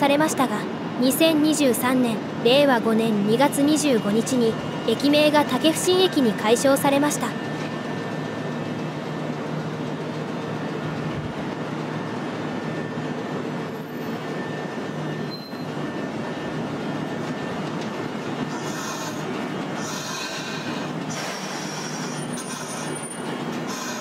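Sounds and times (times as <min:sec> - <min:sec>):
train rumbling on rails: 0:00.0 - 0:24.0
high-pitched wheel squeal: 0:13.7 - 0:15.8, 0:19.8 - 0:24.0.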